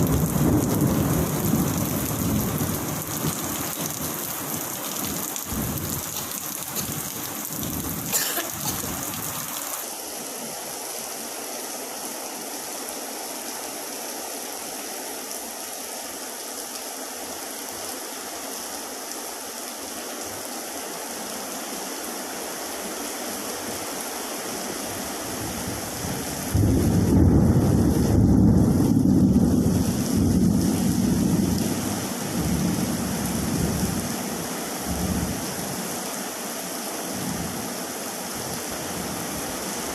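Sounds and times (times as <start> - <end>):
thunder rumble: 0.0 - 9.5, 26.5 - 31.8
heavy rain falling: 0.0 - 39.9.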